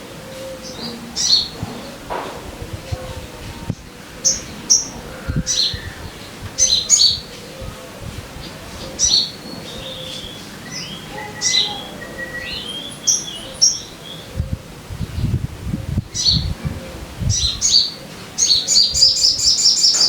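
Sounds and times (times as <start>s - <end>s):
bird warbling: 4.0s - 7.8s
bird chirping: 8.4s - 14.5s, 17.2s - 20.0s.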